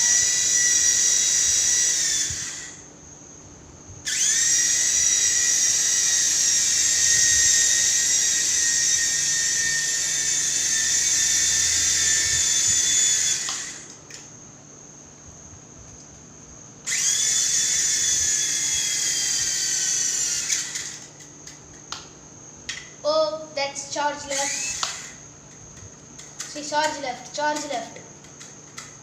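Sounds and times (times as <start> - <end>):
toy helicopter motors whining: 0.0 - 2.9, 4.0 - 14.0, 16.8 - 21.6, 23.8 - 29.0.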